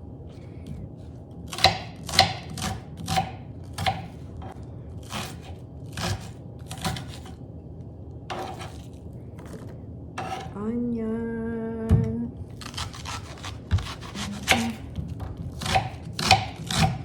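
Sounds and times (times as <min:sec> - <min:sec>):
knife chopping an onion: 0:01.5 - 0:07.4, 0:08.3 - 0:09.6, 0:10.2 - 0:10.5, 0:12.6 - 0:17.0.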